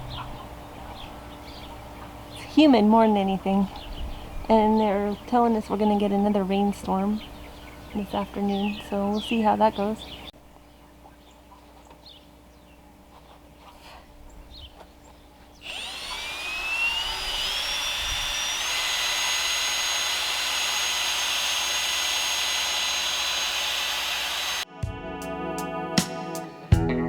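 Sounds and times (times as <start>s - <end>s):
power tool motor whining: 15.6s - 24.6s.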